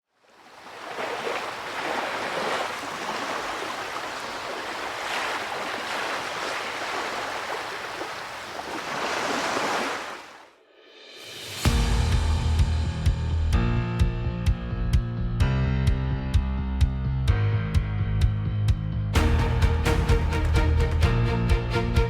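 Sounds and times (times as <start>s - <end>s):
ocean waves breaking: 0.0s - 10.6s
wind: 0.0s - 12.6s.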